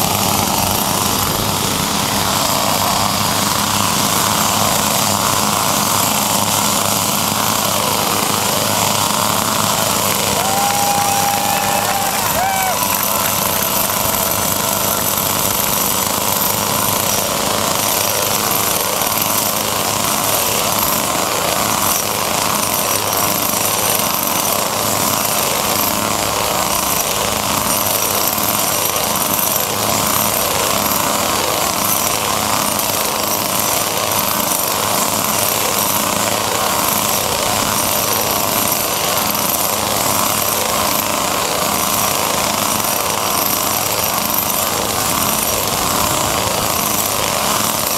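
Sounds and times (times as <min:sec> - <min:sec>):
chainsaw engines droning: 0:00.0 - 0:47.9.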